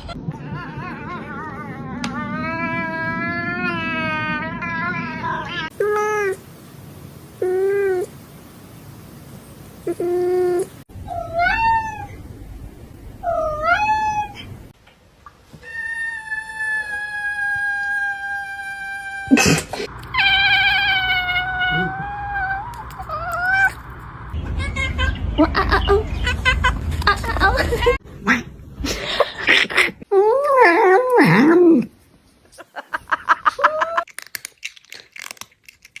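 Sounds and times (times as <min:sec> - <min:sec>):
cat meowing: 0:09.9 - 0:12.2, 0:13.3 - 0:14.5, 0:20.1 - 0:23.8.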